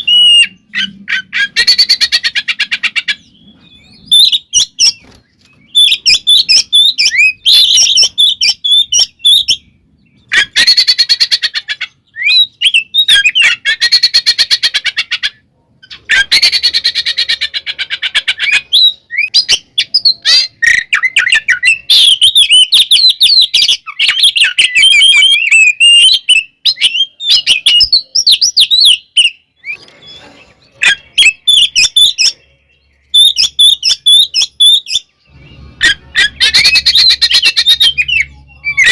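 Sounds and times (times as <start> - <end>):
bird singing whistled phrases: 0.0 - 2.1, 12.1 - 14.4, 18.4 - 29.8, 30.8 - 38.9.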